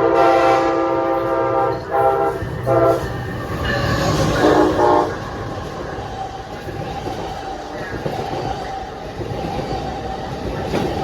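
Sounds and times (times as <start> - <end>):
locomotive horn blasts: 0.0 - 3.1, 4.3 - 5.2
train running on rails: 0.0 - 11.0.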